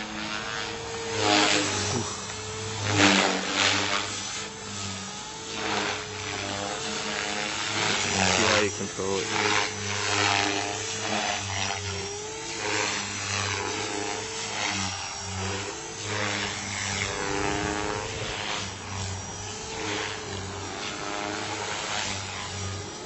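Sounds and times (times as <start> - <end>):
rc helicopter motor whine: 0.0 - 23.0
rotor blade rushes: 0.0 - 23.0.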